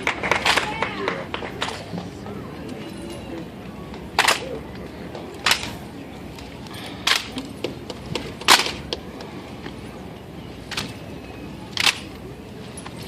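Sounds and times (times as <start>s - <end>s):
rifles slapped and caught: 4.2s - 4.5s, 8.4s - 8.8s, 11.8s - 12.1s.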